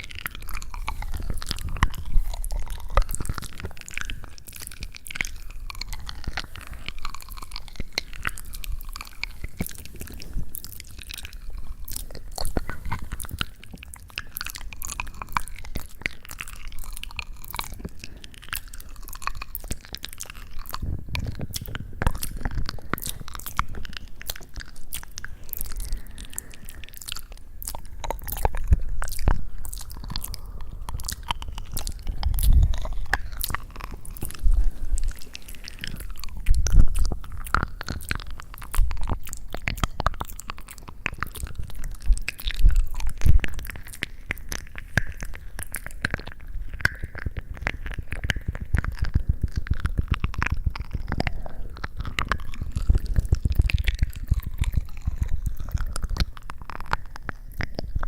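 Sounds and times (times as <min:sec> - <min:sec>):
crisp crunching clicks: 0:00.0 - 0:58.0.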